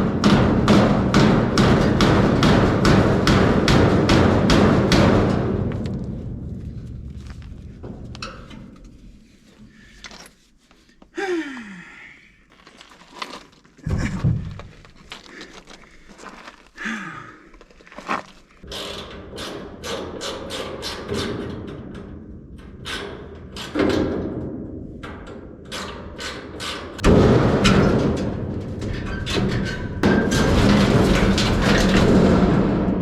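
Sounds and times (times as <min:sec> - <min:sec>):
sheet metal and tools clanking: 0:00.0 - 0:10.8, 0:18.6 - 0:33.0.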